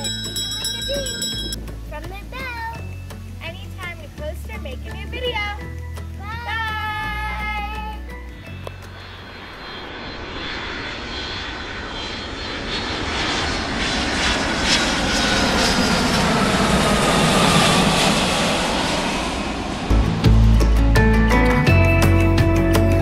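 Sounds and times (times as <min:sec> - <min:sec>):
music: 0:00.0 - 0:09.9, 0:19.9 - 0:23.0
airplane flying past: 0:07.9 - 0:21.3.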